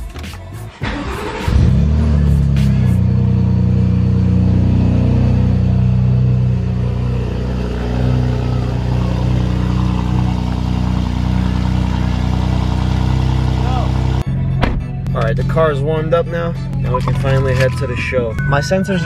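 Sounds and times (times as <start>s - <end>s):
car engine at high idle: 1.2s - 14.2s.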